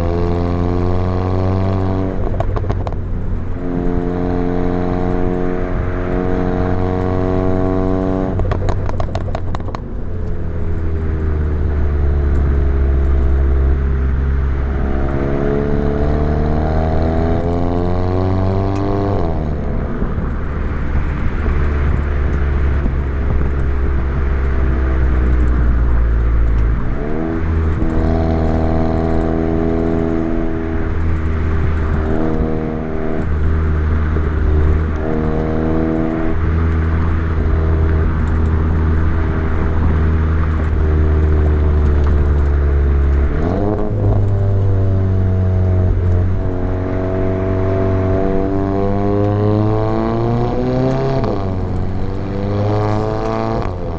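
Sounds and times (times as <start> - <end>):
car engine exhaust: 0.0 - 53.9.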